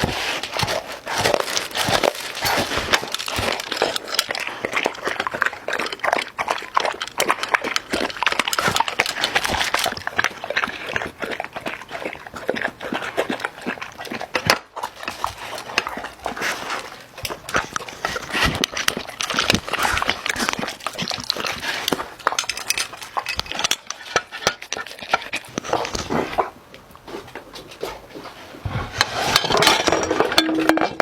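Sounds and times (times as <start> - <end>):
dog eating: 0.0 - 31.0
clinks of a dish: 30.0 - 31.0.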